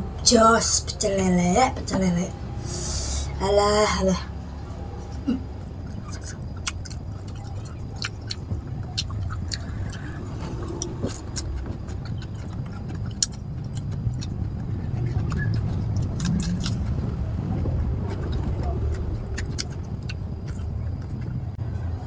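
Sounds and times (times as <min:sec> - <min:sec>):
low background rumble: 0:00.0 - 0:22.0
chewing and lip smacking: 0:05.8 - 0:21.6.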